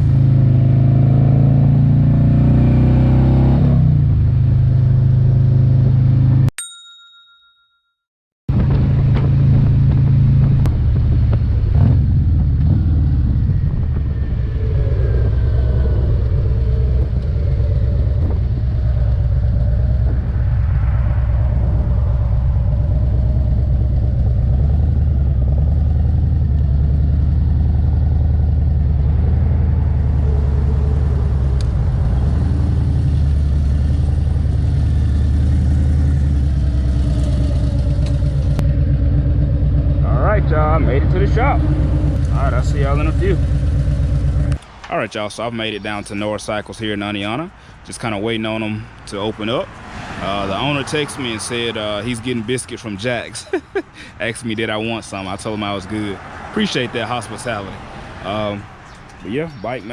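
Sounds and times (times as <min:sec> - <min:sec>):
motorcycle engine running: 0:08.5 - 0:44.6.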